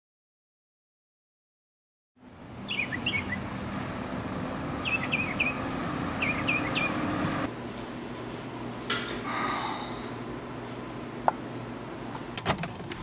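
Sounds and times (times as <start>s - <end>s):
bird chirping: 2.2s - 7.5s
low steady hum: 2.2s - 13.0s.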